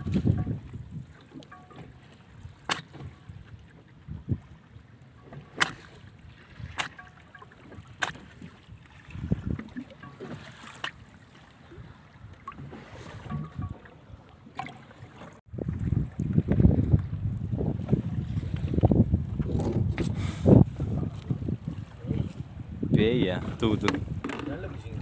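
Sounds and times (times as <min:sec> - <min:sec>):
water noise: 0:00.0 - 0:25.0
wind: 0:00.0 - 0:25.0.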